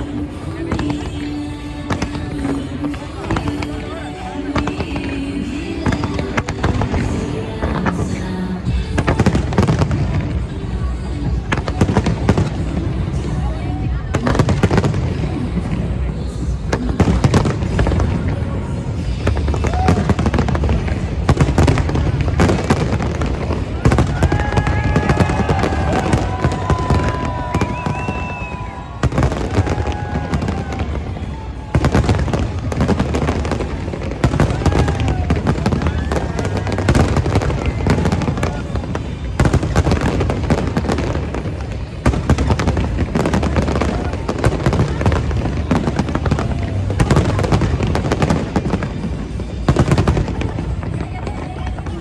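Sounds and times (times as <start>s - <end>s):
fireworks bangs and crackling: 0.0s - 52.0s
high whistling tones: 24.8s - 32.8s.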